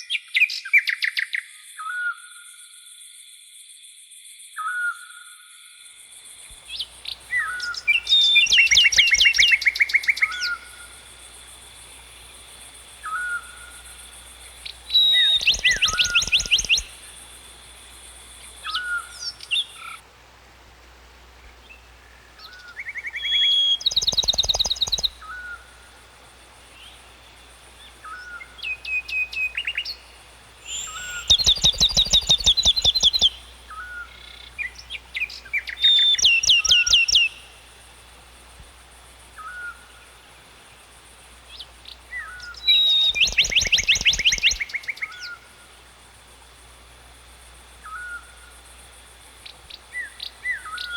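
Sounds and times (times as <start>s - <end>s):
bird trilled song: 6.6s - 20.0s, 22.4s - 37.9s, 41.4s - 45.8s, 49.4s - 50.9s.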